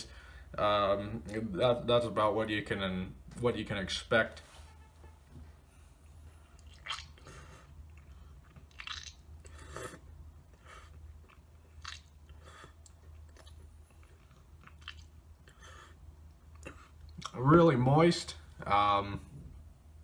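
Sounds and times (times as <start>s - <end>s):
man chewing tobacco: 6.0s - 17.4s.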